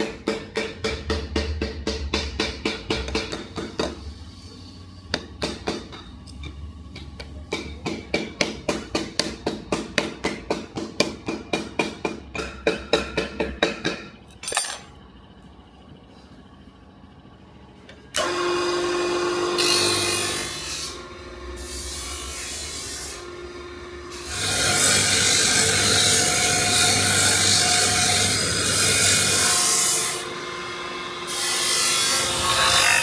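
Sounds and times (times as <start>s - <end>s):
power tool running: 18.2s - 33.0s.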